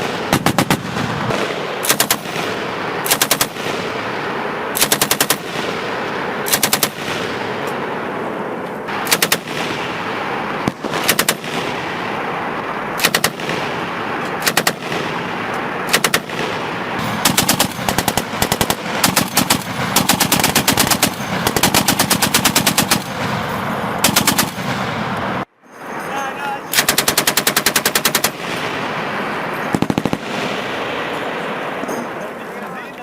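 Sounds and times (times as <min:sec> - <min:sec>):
machine gun firing bursts: 0:00.0 - 0:07.6, 0:08.9 - 0:24.9, 0:26.7 - 0:31.5.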